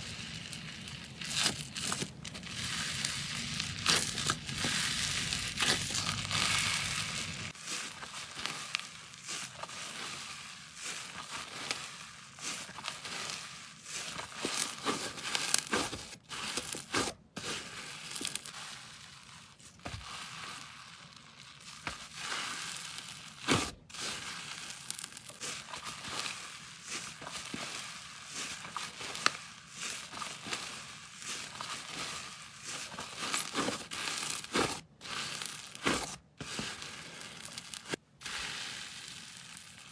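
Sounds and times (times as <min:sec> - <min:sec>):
slime squeezed and pulled by hand: 0:00.0 - 0:10.0, 0:28.3 - 0:39.9.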